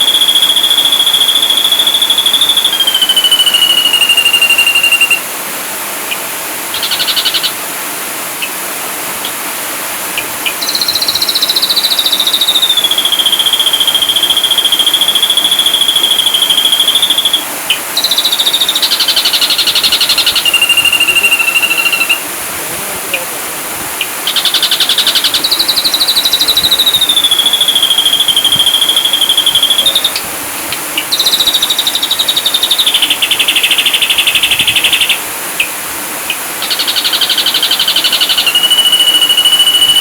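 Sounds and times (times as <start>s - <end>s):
bird song with rapid trills: 0.0s - 5.2s, 6.1s - 7.6s, 10.2s - 22.2s, 31.0s - 35.2s, 36.3s - 40.0s
buzzy bird call: 0.0s - 5.3s, 6.1s - 7.7s, 10.1s - 40.0s.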